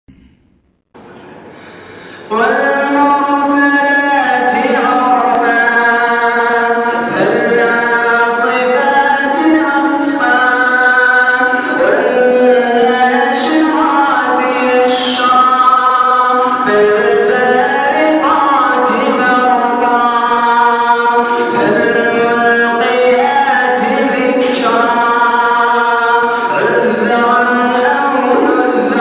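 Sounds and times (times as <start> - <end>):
man chanting melodically: 2.3 - 29.0.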